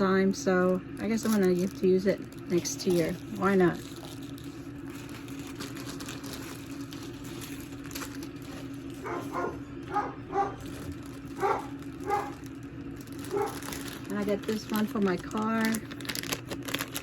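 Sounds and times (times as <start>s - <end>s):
dog barking: 9.0s - 10.8s, 11.4s - 12.4s, 13.3s - 13.7s.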